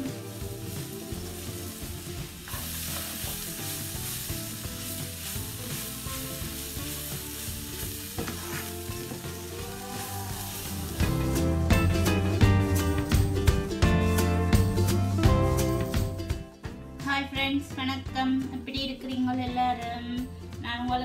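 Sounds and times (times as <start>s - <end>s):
wooden spatula scraping a wok: 0.0s - 12.0s
cabbage sizzling in a wok: 0.0s - 16.2s.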